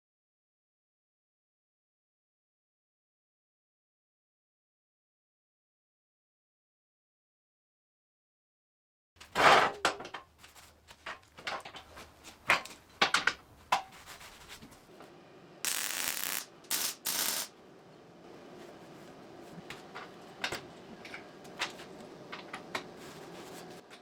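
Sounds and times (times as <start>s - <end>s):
bursts of crackly hissing: 15.7s - 17.5s.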